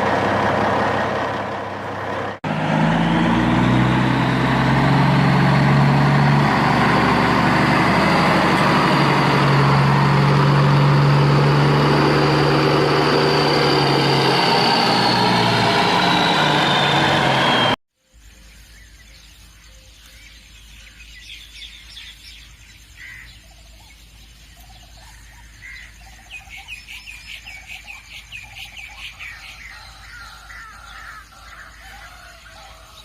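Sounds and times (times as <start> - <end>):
truck engine humming: 0.0 - 17.8.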